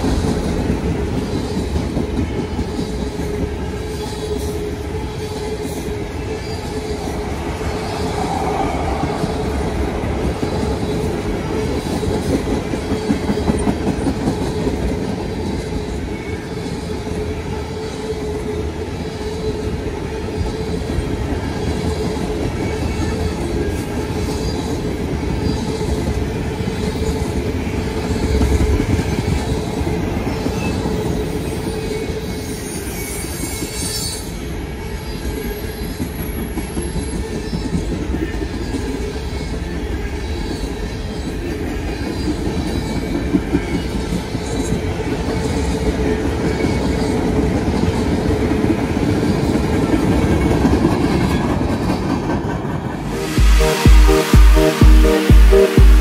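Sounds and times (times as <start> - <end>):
freight train rumbling past: 0.0 - 16.4, 47.2 - 55.8.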